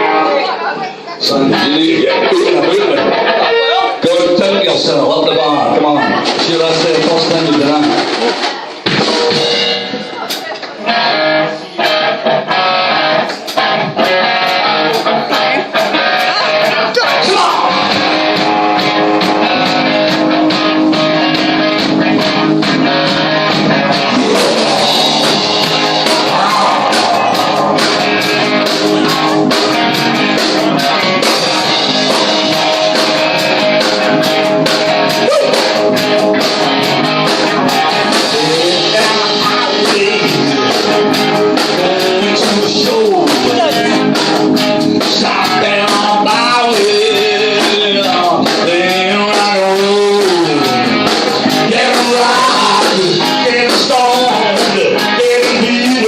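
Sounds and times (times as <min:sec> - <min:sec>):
rock band playing: 0:00.0 - 0:56.0
person singing: 0:14.0 - 0:56.0.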